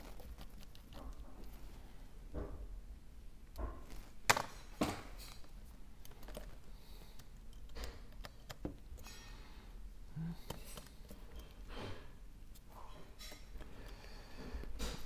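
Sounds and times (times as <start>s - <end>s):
hand tools clicking and tapping: 6.0s - 9.3s.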